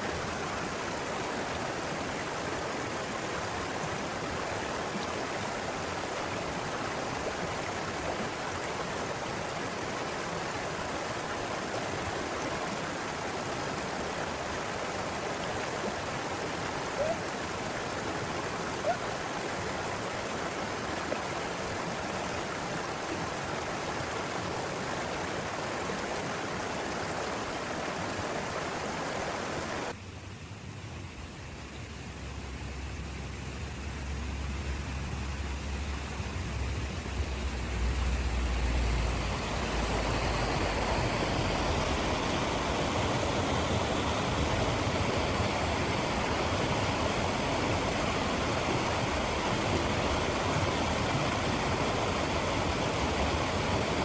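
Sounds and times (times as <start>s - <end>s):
river water flowing: 0.0s - 30.0s, 31.3s - 54.0s.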